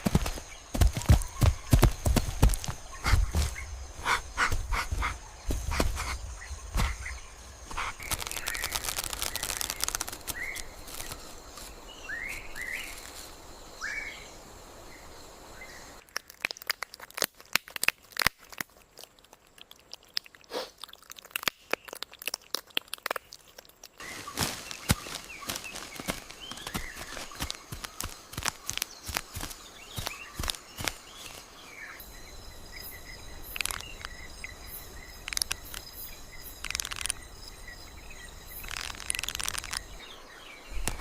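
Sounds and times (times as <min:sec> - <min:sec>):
dry leaf litter crunching: 0:00.0 - 0:13.4, 0:24.0 - 0:31.9, 0:38.5 - 0:40.2.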